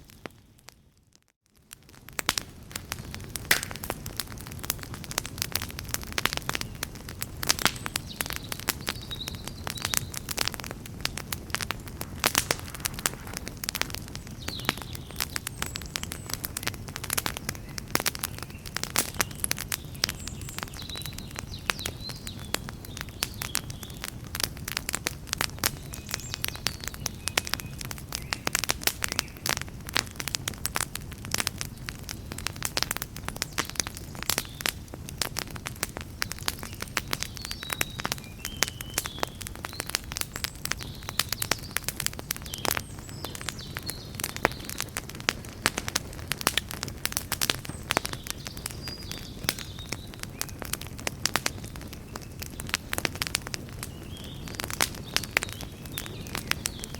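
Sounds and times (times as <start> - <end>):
campfire crackling and popping: 0.0 - 56.9
low rush of flame: 1.9 - 20.4, 42.6 - 56.9.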